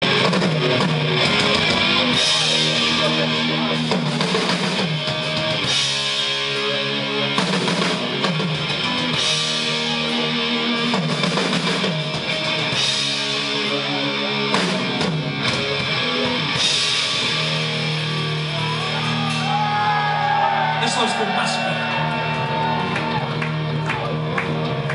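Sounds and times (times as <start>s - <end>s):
heavy electric guitar chords: 0.0s - 24.9s.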